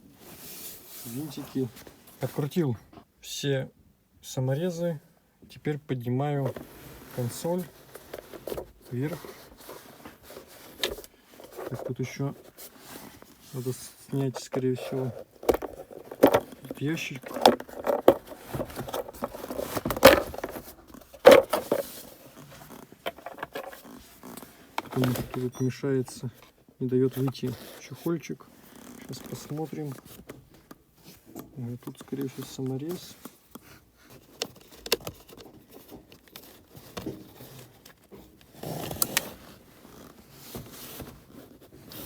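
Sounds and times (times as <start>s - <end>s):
plastic parts scraping and clicking: 6.4s - 27.9s, 28.7s - 42.0s
plastic rasping against trim: 14.2s - 25.4s.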